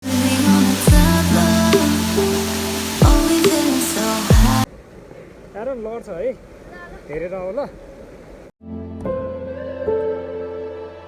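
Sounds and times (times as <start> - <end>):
electronic dance music: 0.2 - 4.7
deep bass kick: 0.9 - 1.2, 3.0 - 3.3, 4.3 - 4.6.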